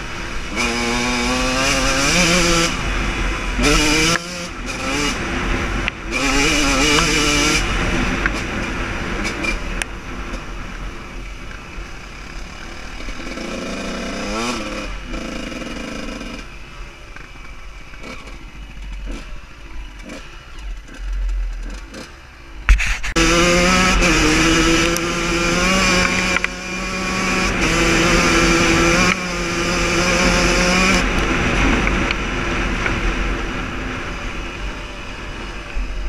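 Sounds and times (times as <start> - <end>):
dirt bike engine revving: 0.0 - 16.8, 17.8 - 36.0
sharp knock: 22.7 - 23.2.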